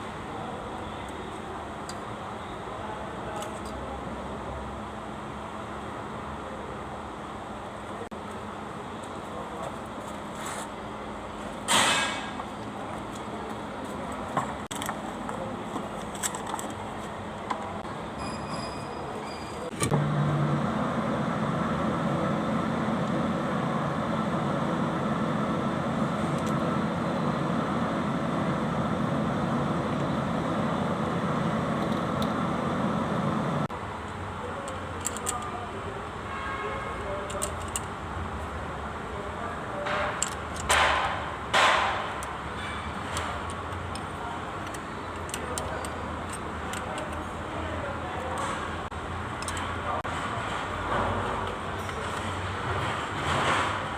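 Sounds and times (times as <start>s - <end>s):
diesel tractor engine running: 19.7s - 33.9s.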